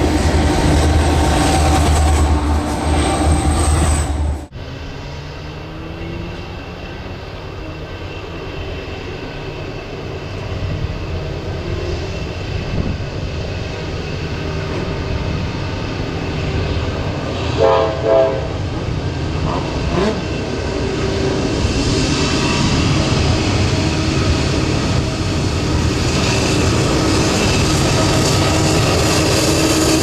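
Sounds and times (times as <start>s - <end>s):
train rumbling: 0.0s - 30.0s
train horn blasts: 17.4s - 18.8s.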